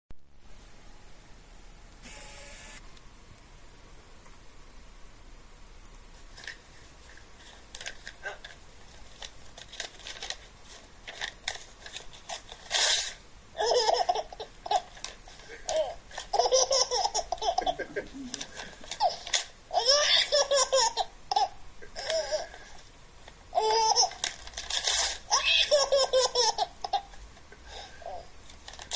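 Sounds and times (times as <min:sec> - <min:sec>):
paper tearing: 0:09.6 - 0:13.2, 0:24.0 - 0:25.4
baby laughing through speaker: 0:13.6 - 0:22.6, 0:23.5 - 0:24.2, 0:25.3 - 0:27.2.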